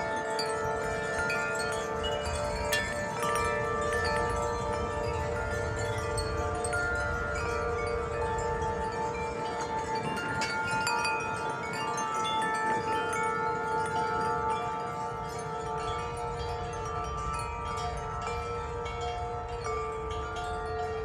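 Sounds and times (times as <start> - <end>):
low rumble of wind: 0.0 - 21.0
wind chimes ringing: 0.0 - 21.0.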